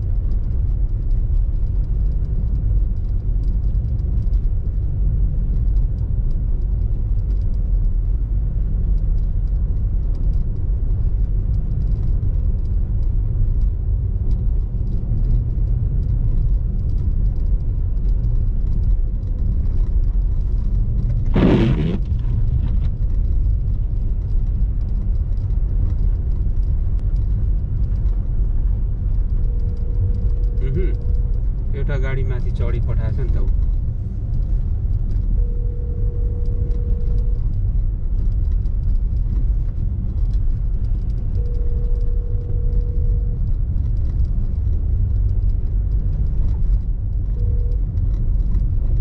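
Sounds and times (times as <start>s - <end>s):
car engine and tyres rumbling: 0.0s - 49.0s.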